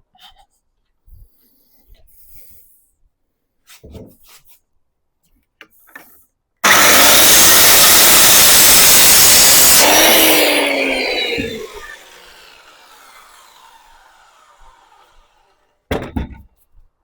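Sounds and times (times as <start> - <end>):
power saw cutting wood: 6.6 - 15.7
timber knocks: 15.9 - 16.6.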